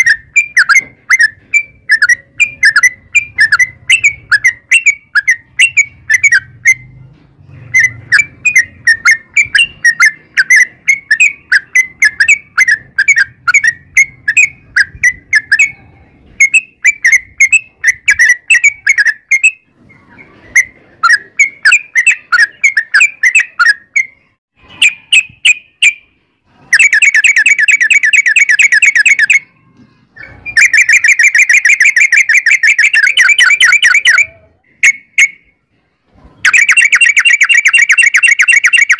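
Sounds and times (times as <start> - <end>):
bird chirping: 0.0 - 38.9
bird rapid trills: 26.7 - 29.6, 30.2 - 35.4, 36.4 - 38.9.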